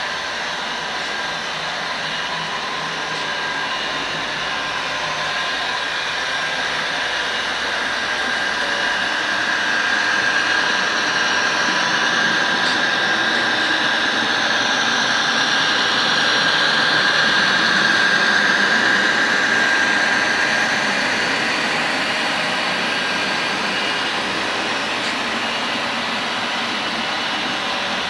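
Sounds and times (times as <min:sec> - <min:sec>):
model train whirring: 0:00.0 - 0:28.0.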